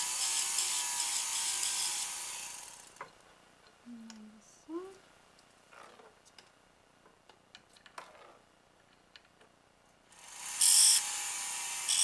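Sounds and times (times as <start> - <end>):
rotary tool whirring and grinding: 0.0 - 3.0, 10.1 - 12.0.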